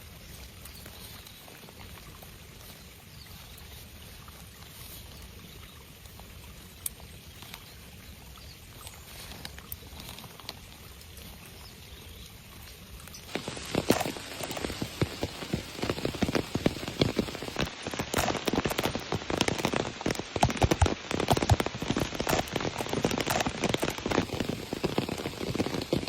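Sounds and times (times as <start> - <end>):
rain pattering in forest: 0.0 - 26.0
sharp raindrop ticks: 6.0 - 7.7, 12.7 - 26.0.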